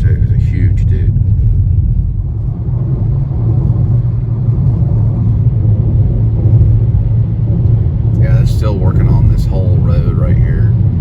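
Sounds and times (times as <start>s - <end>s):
car driving interior rumble: 0.0s - 11.0s.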